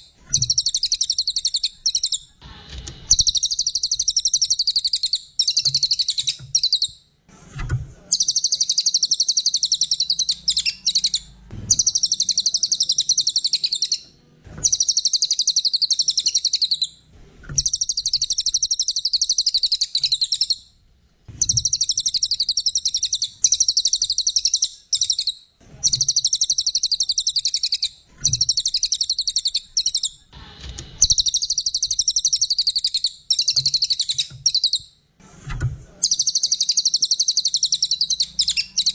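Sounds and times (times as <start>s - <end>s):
songbird singing rapid trills: 8.2s - 14.0s.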